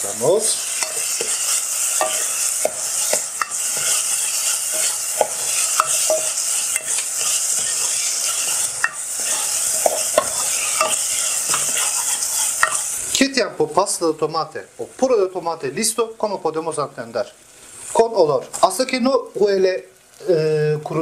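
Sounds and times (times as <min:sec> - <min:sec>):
food sizzling in hot oil: 0:00.0 - 0:21.0
spoon scraping and tapping pot: 0:00.8 - 0:12.9.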